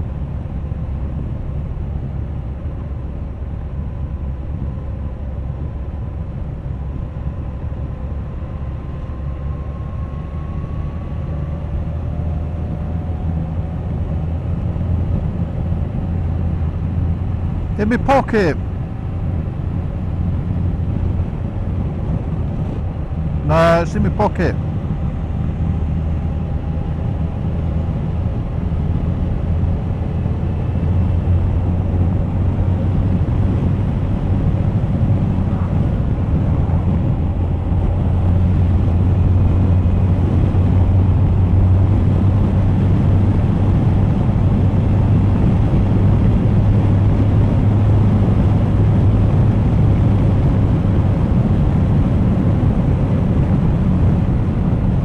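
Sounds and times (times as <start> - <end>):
wind buffeting microphone: 24.6 - 55.0.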